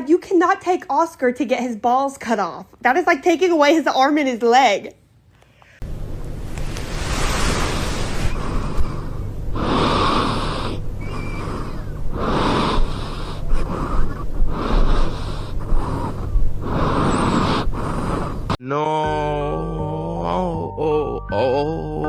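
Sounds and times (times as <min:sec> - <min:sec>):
low hum: 0:05.8 - 0:21.2.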